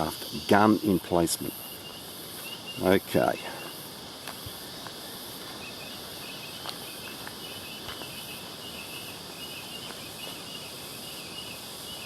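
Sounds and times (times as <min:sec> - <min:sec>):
insects chirring: 0:00.0 - 0:12.0
faint ticks: 0:04.2 - 0:05.6.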